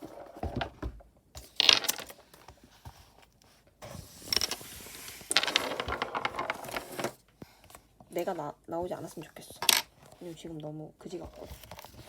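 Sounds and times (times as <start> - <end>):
rustling: 1.4 - 7.8.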